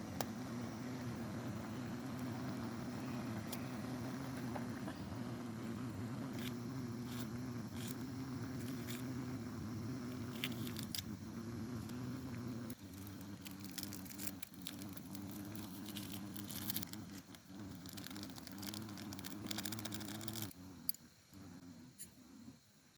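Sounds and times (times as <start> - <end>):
low engine-like hum: 0.0 - 21.4.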